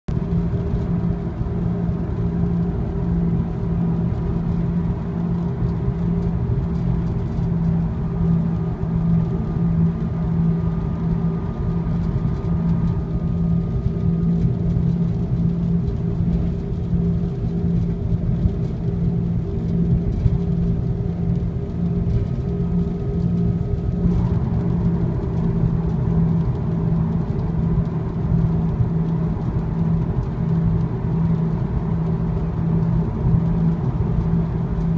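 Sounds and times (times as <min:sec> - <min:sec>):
pulsing low hum: 0:00.1 - 0:34.9
road noise: 0:00.1 - 0:34.9.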